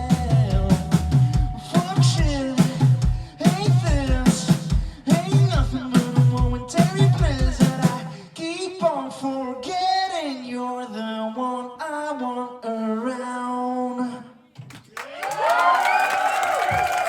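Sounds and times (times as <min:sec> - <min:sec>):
drum hits: 0:00.0 - 0:08.0
crowd cheering and applauding: 0:14.9 - 0:17.0.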